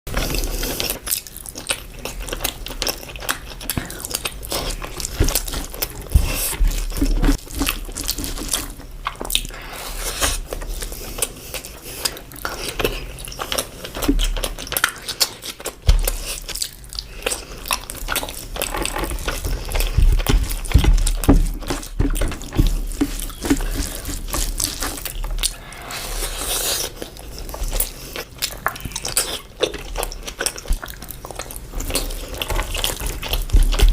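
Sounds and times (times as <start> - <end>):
person chewing food: 0.1 - 33.9.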